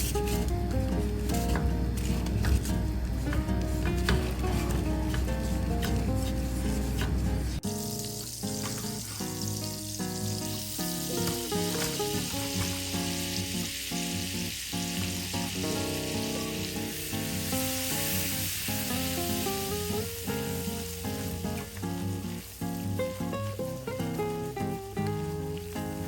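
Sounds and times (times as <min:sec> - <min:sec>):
food sizzling in a pan: 0:00.0 - 0:26.0
music with plucked notes: 0:00.0 - 0:26.0.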